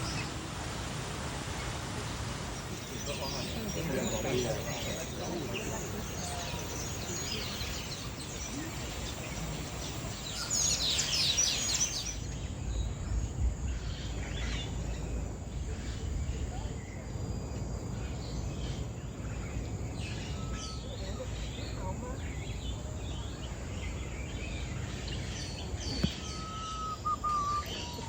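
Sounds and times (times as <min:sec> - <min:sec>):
birds chirping and calling: 0:02.4 - 0:12.9, 0:19.4 - 0:28.0.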